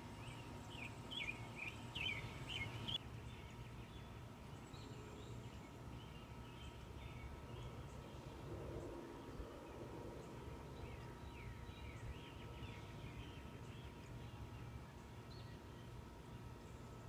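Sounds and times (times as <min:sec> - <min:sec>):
faint birdsong chirps: 0:00.0 - 0:17.0
low steady rumble: 0:00.0 - 0:17.0.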